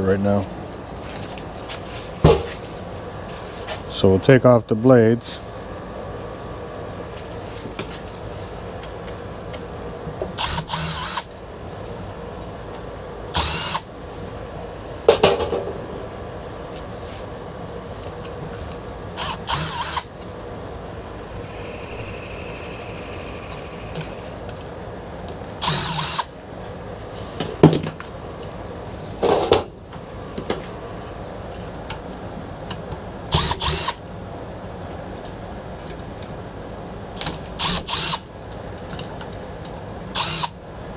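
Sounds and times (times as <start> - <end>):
power drill running: 10.4 - 11.2, 13.4 - 13.9, 19.2 - 20.1, 21.2 - 24.5, 25.6 - 26.3, 37.3 - 38.2, 40.2 - 40.5.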